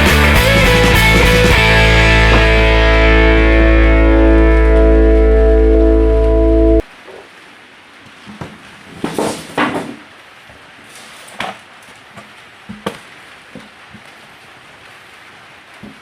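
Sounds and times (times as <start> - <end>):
handling scraping and rustling: 8.2 - 10.0, 10.8 - 13.7.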